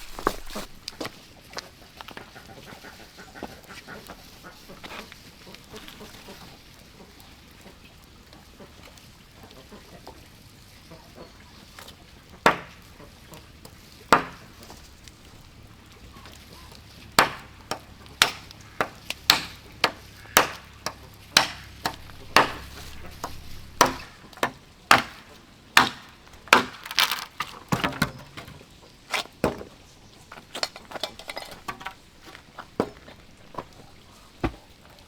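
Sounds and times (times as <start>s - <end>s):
wood being chopped: 0.0s - 0.8s, 12.4s - 12.8s, 14.1s - 14.6s, 17.2s - 28.5s.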